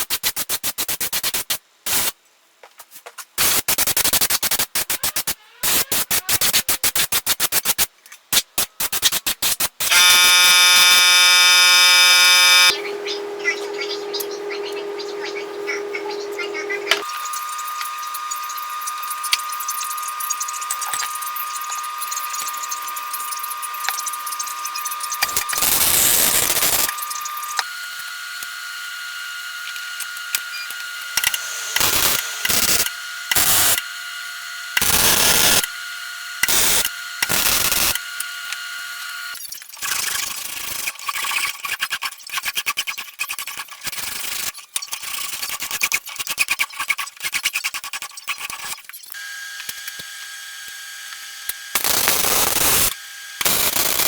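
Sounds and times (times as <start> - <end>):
power tool biting into work: 9.8 - 12.8, 16.9 - 40.9, 49.1 - 54.0
power tool whining: 9.8 - 40.2, 49.1 - 54.0.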